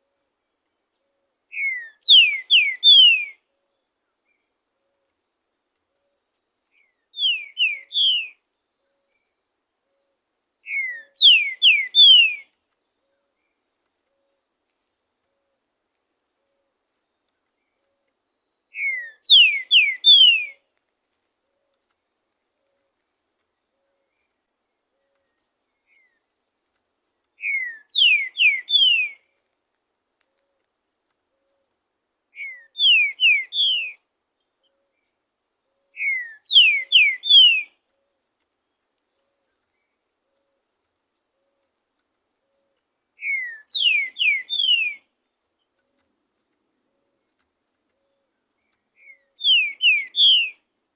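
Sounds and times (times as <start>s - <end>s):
bird singing whistled phrases: 1.5s - 3.4s, 6.8s - 8.4s, 10.6s - 12.5s, 18.7s - 20.6s, 27.4s - 29.2s, 32.4s - 34.0s, 36.0s - 37.7s, 43.2s - 45.0s, 49.0s - 50.6s.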